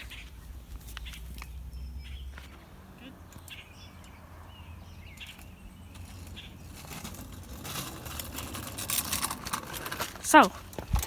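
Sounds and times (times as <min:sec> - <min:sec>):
crackling and rustling: 0:05.1 - 0:11.0.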